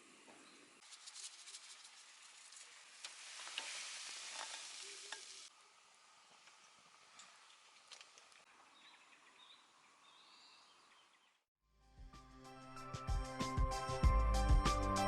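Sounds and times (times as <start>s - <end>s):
food sizzling in a hot pan: 0.8s - 7.2s.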